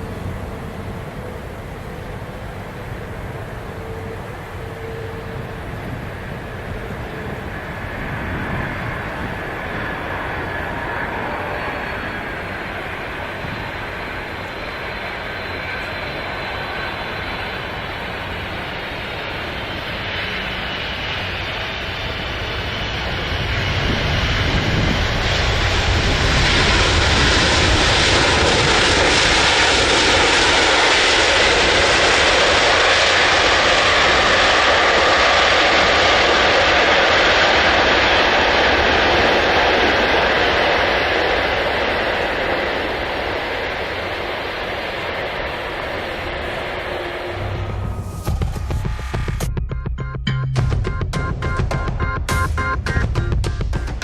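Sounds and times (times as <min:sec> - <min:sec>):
plane passing by: 0:00.0 - 0:49.4.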